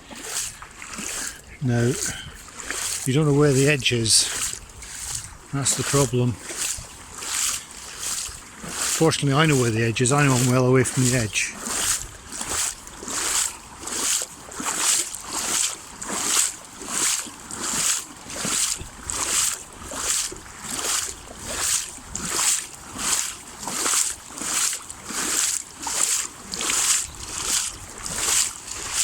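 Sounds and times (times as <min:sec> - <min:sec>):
wading through water: 0:00.0 - 0:29.0.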